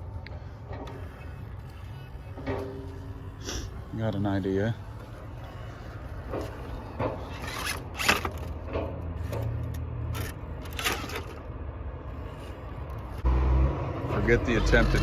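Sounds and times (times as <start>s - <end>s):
low drivetrain hum: 0.0s - 15.0s
tyres scraping and crunching on rock: 0.4s - 11.5s.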